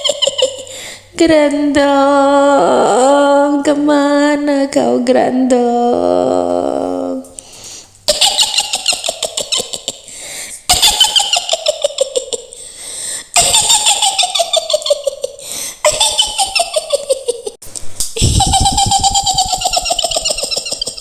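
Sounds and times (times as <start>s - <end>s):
high shrill cackling laugh: 8.1s - 10.1s, 10.7s - 12.5s, 13.4s - 17.6s, 18.2s - 21.0s.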